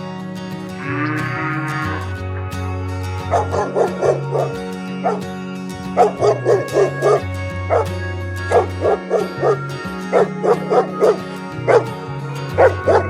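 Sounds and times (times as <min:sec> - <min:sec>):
background music with bass: 0:00.0 - 0:13.0
small dog yipping: 0:03.3 - 0:05.2, 0:08.5 - 0:11.9.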